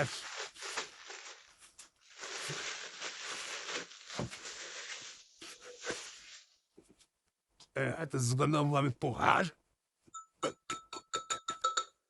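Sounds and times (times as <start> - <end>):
packaging crinkling and rustling: 0.0 - 6.5.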